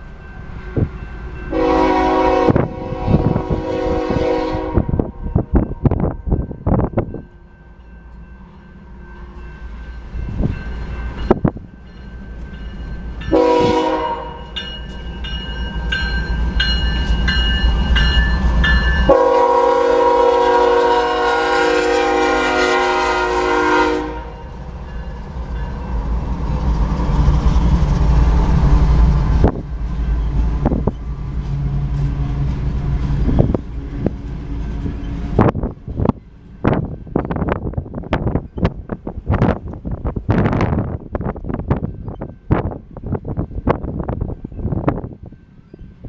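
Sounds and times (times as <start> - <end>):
crossing bell dinging: 0.0 - 2.4, 5.2 - 19.9, 24.2 - 26.2
locomotive engine rumble: 0.0 - 46.0
train air horn blasts: 1.5 - 6.0, 13.3 - 14.6, 19.1 - 24.4.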